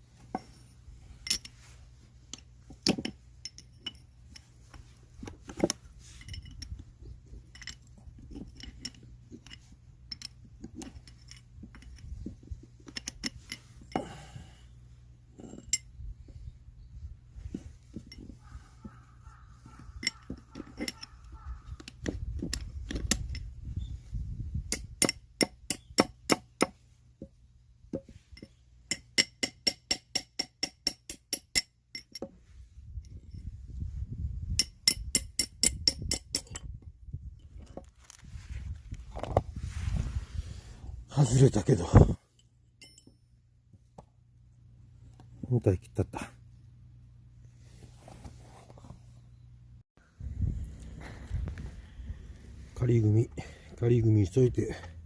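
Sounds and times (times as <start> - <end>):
metal tools clinking: 0.2 - 14.2, 15.4 - 16.0, 19.6 - 23.6, 30.8 - 32.3, 41.2 - 43.4.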